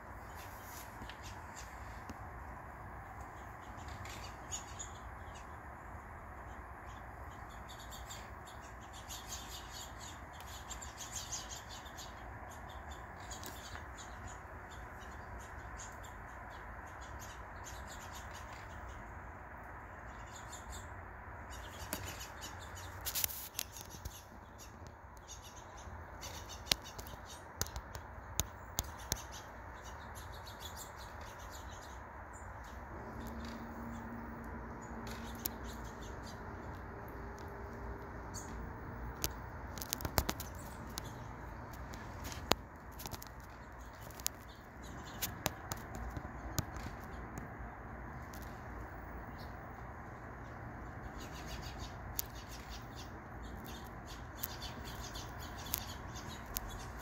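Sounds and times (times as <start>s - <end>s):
low background hum: 0.0s - 57.0s
songbirds chirping: 0.0s - 57.0s
sharp clicks: 26.4s - 29.3s, 39.0s - 47.5s.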